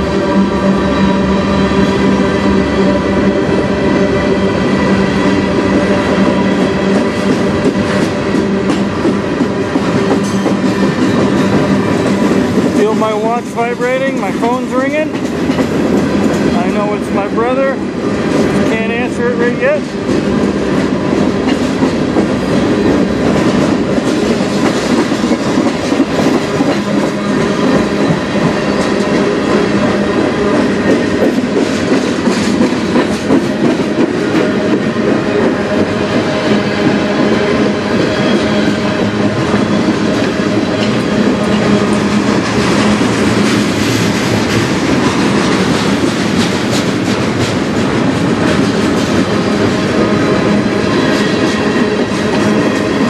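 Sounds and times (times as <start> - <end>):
freight train rumbling past: 0.0 - 53.0
wheels clicking over rail joints: 14.0 - 16.6, 39.0 - 50.1.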